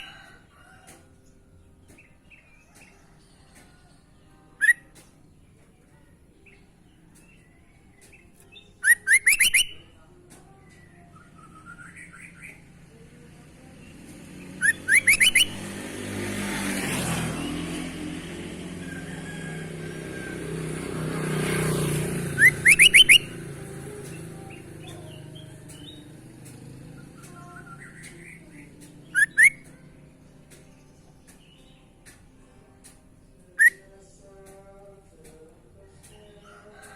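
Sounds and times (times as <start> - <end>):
bird whistling rising notes: 8.8 - 9.8, 14.6 - 15.7, 22.3 - 23.4.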